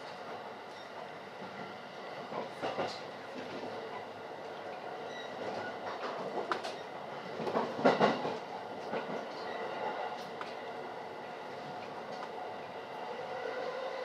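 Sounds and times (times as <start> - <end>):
train rumble inside car: 0.0 - 10.6.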